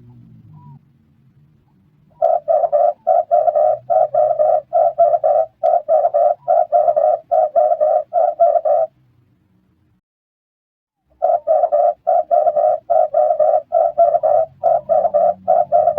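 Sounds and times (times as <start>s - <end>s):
dove cooing: 2.1s - 8.9s, 11.2s - 15.9s.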